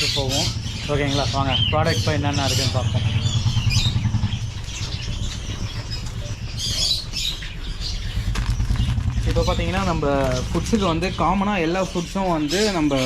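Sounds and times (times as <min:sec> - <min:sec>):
steady low rumble: 0:00.0 - 0:12.9
birds squawking and chirping: 0:00.0 - 0:13.0.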